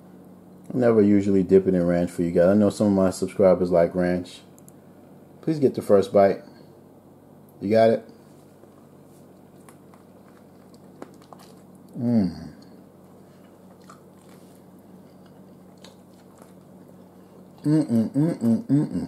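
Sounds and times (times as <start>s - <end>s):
man chewing food: 8.4s - 19.0s
man humming: 11.9s - 12.8s, 17.6s - 19.0s.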